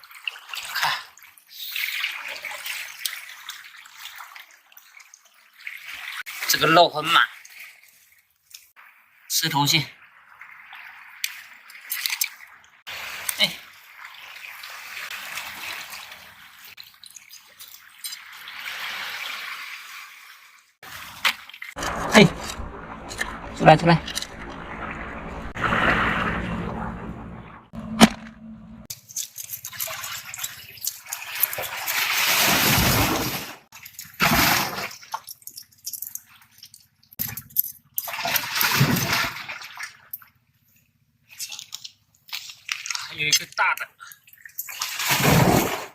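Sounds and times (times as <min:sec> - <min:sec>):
seawater sloshing among rocks: 0:24.1 - 0:28.1.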